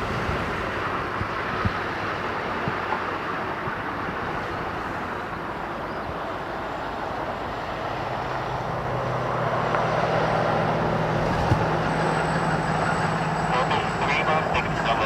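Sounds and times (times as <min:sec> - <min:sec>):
jet engines rushing: 0:00.0 - 0:15.0
low drone: 0:08.8 - 0:15.0.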